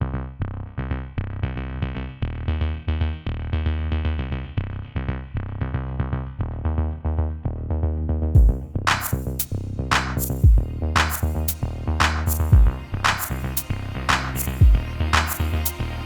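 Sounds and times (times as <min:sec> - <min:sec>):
heavy drum hit: 0:08.4 - 0:08.6, 0:12.5 - 0:12.7
electronic synthesizer music: 0:10.2 - 0:16.0.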